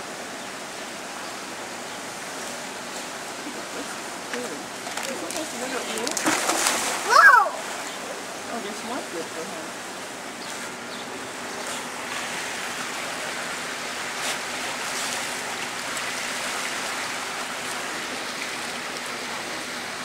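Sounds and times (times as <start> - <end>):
running water rushing: 0.0 - 20.0
faint splashes: 3.4 - 9.9, 11.6 - 20.0.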